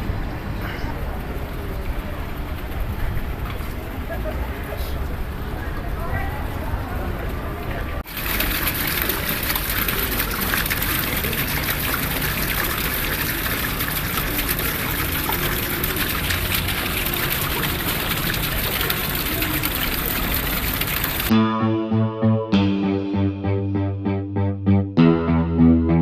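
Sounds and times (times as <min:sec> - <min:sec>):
running water rushing: 0:08.0 - 0:21.3.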